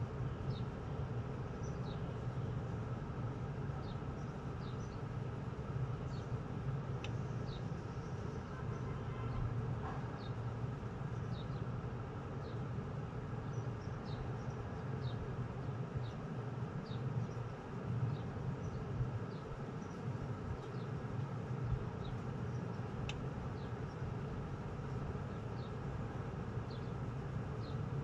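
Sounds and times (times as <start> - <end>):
low hum of machinery: 0.0 - 28.0.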